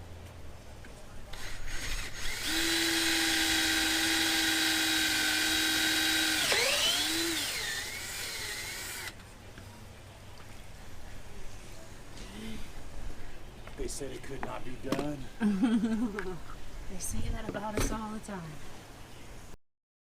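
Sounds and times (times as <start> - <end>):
electric drill running: 1.4 - 9.2.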